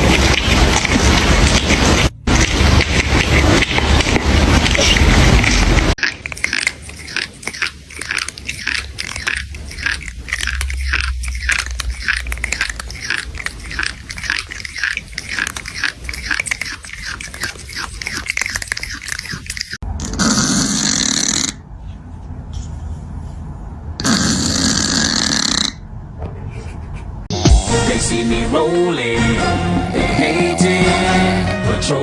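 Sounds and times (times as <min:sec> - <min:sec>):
rapid irregular crunching: 0:00.0 - 0:19.8.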